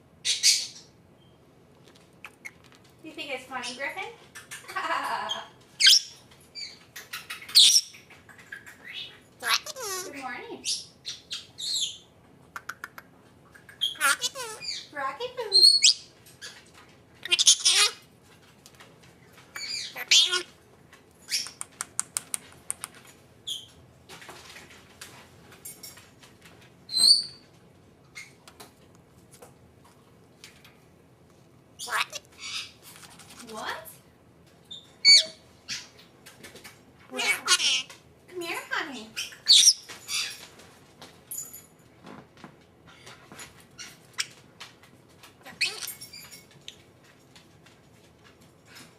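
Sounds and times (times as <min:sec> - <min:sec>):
parrot chirp: 0:00.2 - 0:01.4, 0:02.2 - 0:02.8, 0:04.4 - 0:13.0, 0:13.6 - 0:16.6, 0:17.2 - 0:18.0, 0:19.5 - 0:20.6, 0:21.3 - 0:21.7, 0:26.9 - 0:27.4, 0:31.8 - 0:32.8, 0:34.7 - 0:36.0, 0:37.1 - 0:37.9, 0:39.1 - 0:40.4, 0:43.8 - 0:44.4, 0:45.5 - 0:46.8
parrot clicks: 0:12.5 - 0:13.8, 0:21.3 - 0:23.0
parrot squeaky notes: 0:13.8 - 0:14.9, 0:17.2 - 0:18.0, 0:19.6 - 0:20.5, 0:31.8 - 0:32.2, 0:35.1 - 0:35.4, 0:37.2 - 0:37.9, 0:45.6 - 0:46.1
soft clicks and rustling: 0:18.2 - 0:19.6, 0:20.8 - 0:26.8, 0:27.4 - 0:31.5
parrot whistled squeak: 0:34.8 - 0:35.4, 0:45.6 - 0:46.3.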